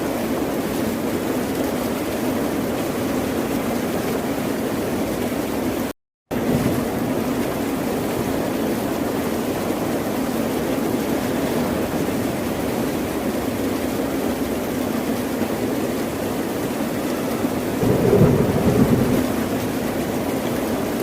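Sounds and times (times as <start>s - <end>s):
ocean surf washing: 17.7s - 20.8s.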